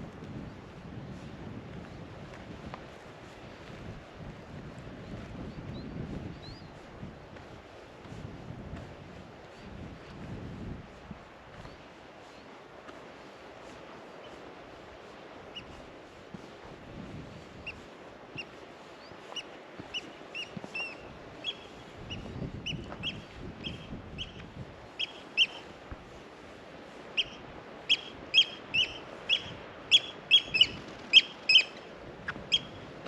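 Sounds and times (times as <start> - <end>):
bird calling in sharp notes: 25.0 - 25.7, 27.2 - 32.8.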